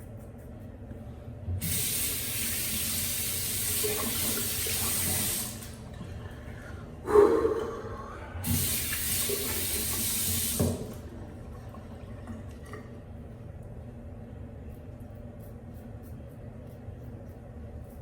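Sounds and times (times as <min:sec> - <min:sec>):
sink faucet running: 0:01.6 - 0:06.1, 0:08.4 - 0:12.6.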